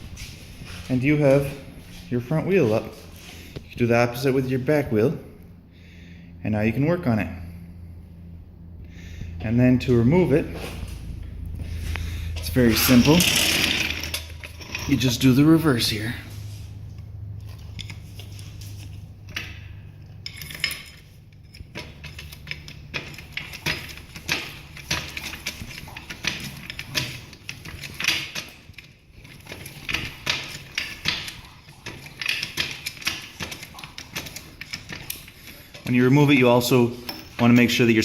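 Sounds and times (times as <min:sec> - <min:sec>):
car jack metal clicks and clanks: 0:10.6 - 0:16.2, 0:17.4 - 0:38.0.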